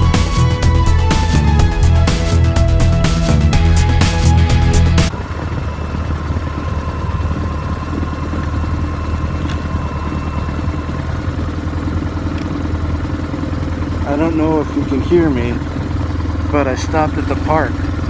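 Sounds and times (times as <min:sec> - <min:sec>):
music track: 0:00.0 - 0:05.1
motorcycle engine running steadily: 0:00.0 - 0:18.0.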